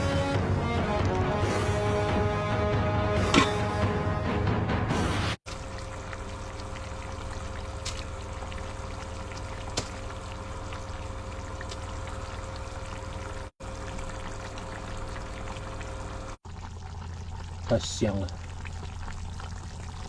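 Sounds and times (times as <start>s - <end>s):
stew bubbling in a pot: 5.4s - 20.0s
faint steady hum: 5.5s - 20.0s.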